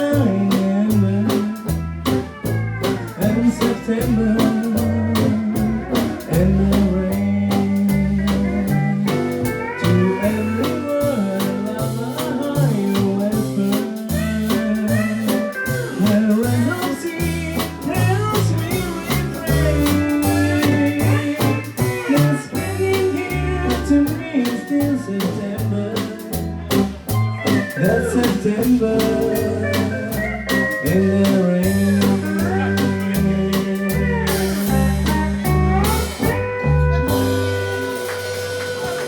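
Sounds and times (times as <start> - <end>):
country-swing band playing: 0.0 - 39.0.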